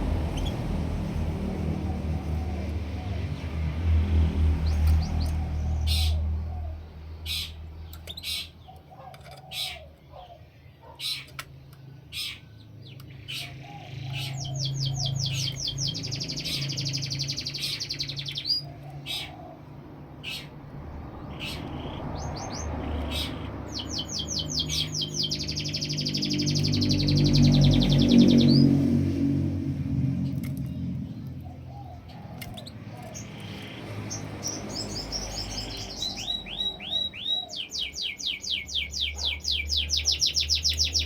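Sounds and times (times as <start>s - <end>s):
low hum: 0.0s - 7.8s, 25.4s - 35.1s
songbird singing trills: 4.5s - 19.6s, 21.2s - 29.3s, 30.2s - 41.0s.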